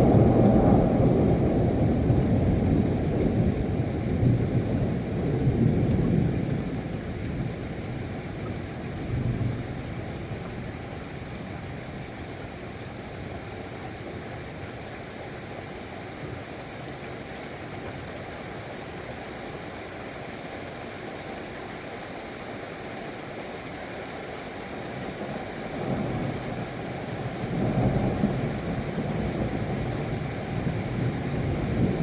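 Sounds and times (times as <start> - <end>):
low rumble of thunder: 0.0 - 12.1, 25.2 - 32.0
steady rain: 0.0 - 32.0.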